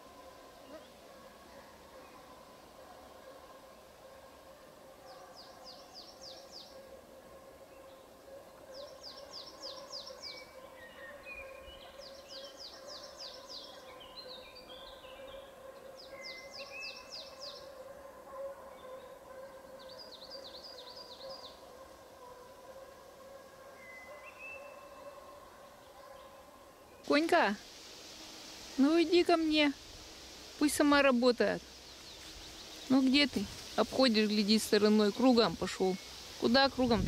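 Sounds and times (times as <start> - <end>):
small birds chirping: 0.0 - 7.0, 7.7 - 17.8, 18.7 - 22.0, 28.6 - 37.0.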